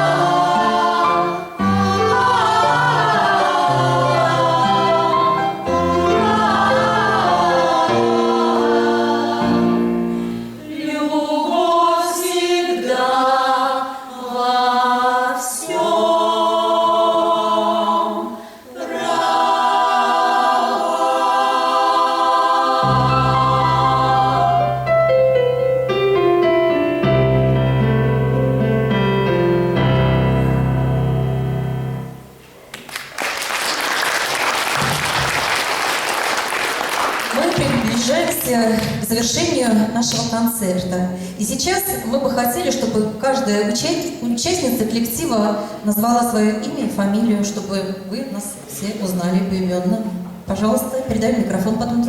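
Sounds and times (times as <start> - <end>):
women singing in harmony: 0.0 - 24.9
instrumental accompaniment: 21.6 - 32.7.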